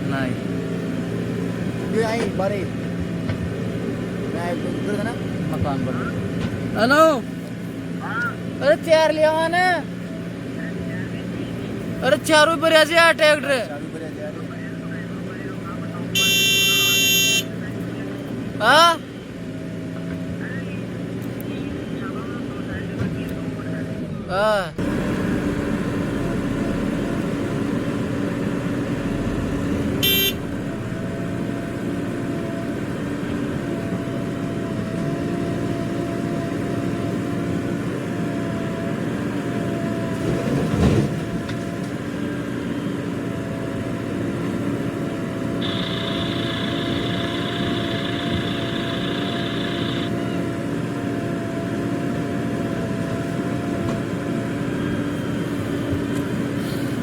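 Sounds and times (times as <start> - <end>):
diesel engines running: 0.0 - 57.0
steady high tone: 45.6 - 50.3.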